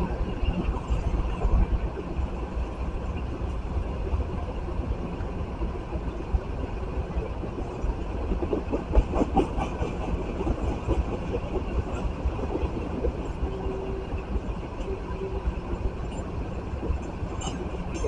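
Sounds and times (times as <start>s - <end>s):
freight train low rumble: 0.0s - 18.0s
train wheel clacks: 8.2s - 14.2s.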